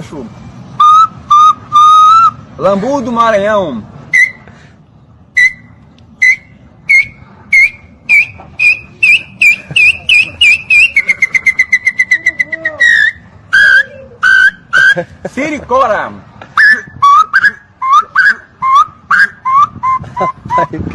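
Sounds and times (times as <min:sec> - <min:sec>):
parrot whistling: 0:00.8 - 0:02.4, 0:04.1 - 0:04.4, 0:05.4 - 0:15.0, 0:16.6 - 0:20.0.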